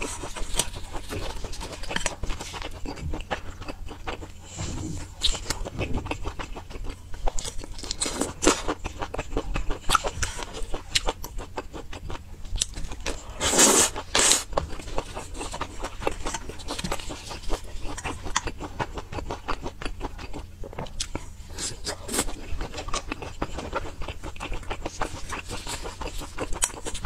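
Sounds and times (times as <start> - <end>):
person chewing food: 0.0 - 27.0.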